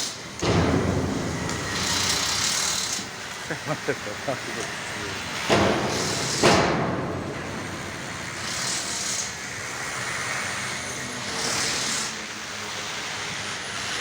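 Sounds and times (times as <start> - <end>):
heavy vehicle engine running: 0.2 - 14.0
air hissing: 0.4 - 9.9.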